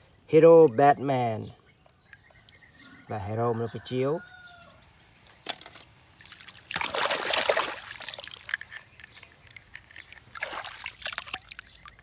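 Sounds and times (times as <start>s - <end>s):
water splashing and trickling: 5.6s - 12.0s
water dripping: 6.2s - 12.0s.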